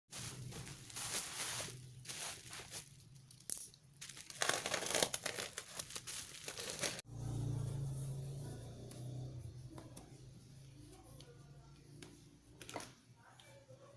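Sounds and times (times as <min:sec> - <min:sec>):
plastic packaging crinkling: 0:00.2 - 0:07.0.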